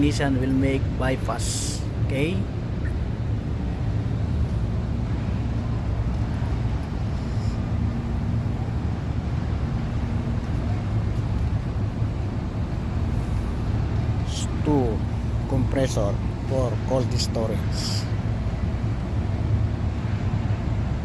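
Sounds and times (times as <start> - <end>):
compressor low hum: 0.0 - 21.0
faint steady tone: 1.6 - 21.0.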